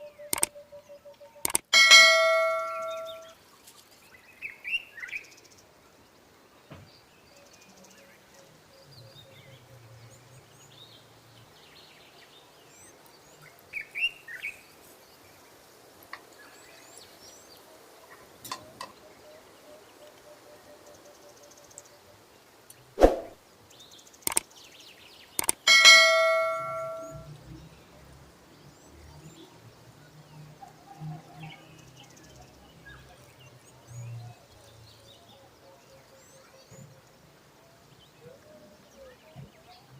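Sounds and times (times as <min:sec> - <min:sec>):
birds chirping faintly: 0:00.0 - 0:39.9
ringing clang of struck metal: 0:01.8 - 0:03.3, 0:25.7 - 0:27.3.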